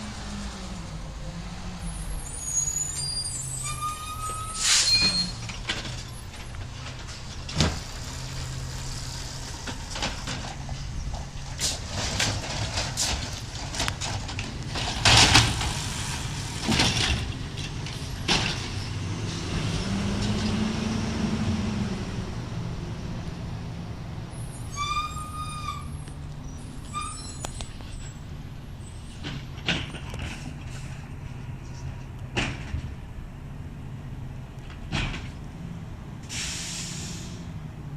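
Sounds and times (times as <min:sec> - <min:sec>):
clanks and knocks: 0:09.6 - 0:15.8, 0:29.2 - 0:30.8, 0:32.0 - 0:33.0, 0:34.7 - 0:35.4
air hiss bursts: 0:36.3 - 0:37.4.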